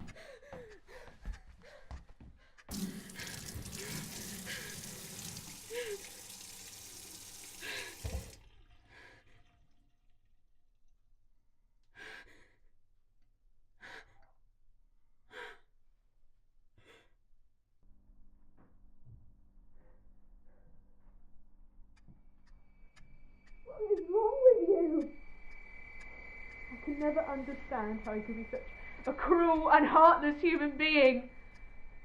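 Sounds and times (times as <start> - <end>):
person sighing heavily: 5.7 - 6.1, 7.6 - 8.2
steady hiss: 25.0 - 32.0.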